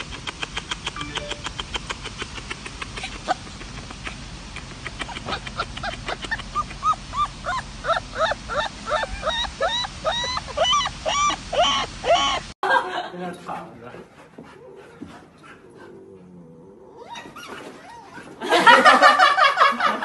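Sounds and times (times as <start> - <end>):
puppy yipping: 6.6 - 12.4.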